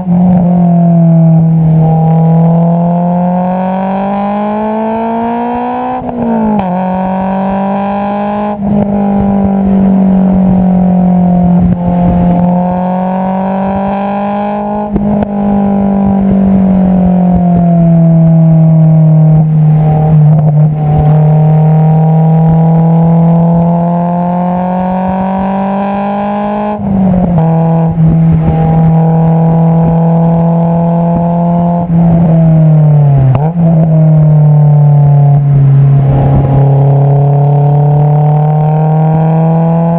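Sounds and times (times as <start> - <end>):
car exhaust while driving: 0.0 - 39.9.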